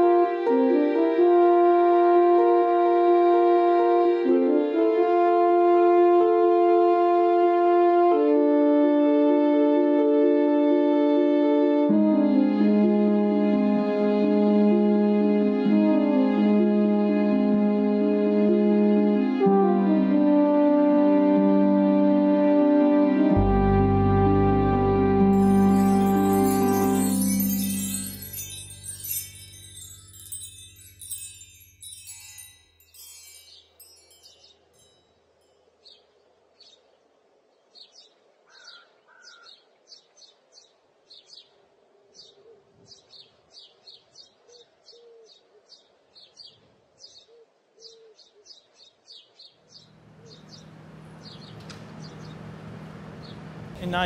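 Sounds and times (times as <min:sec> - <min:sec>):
soft music notes: 0:00.0 - 0:35.0
small birds chirping: 0:35.8 - 0:54.0.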